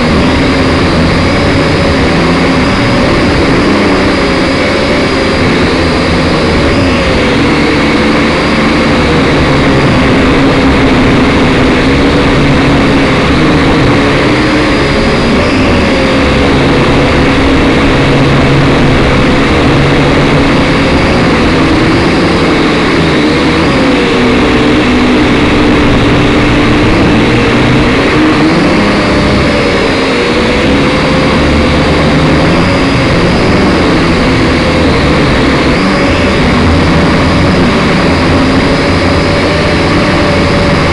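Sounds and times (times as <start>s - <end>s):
quadcopter motors whining: 0.0s - 40.9s.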